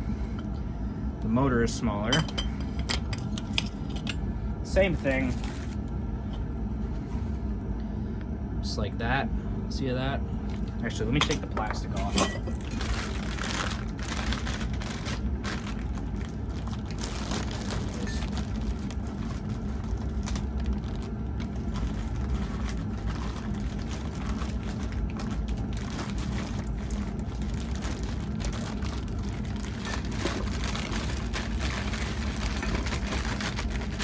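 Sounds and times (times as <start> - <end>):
steady low hum: 0.0 - 34.0
plastic wrapping crinkling: 10.5 - 34.0.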